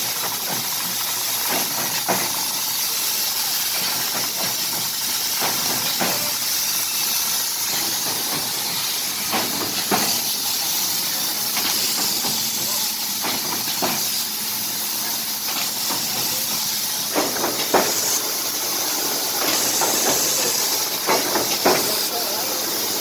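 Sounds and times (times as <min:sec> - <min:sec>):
trimming machine hissing: 0:00.0 - 0:23.0
clicks and knocks: 0:15.5 - 0:22.1.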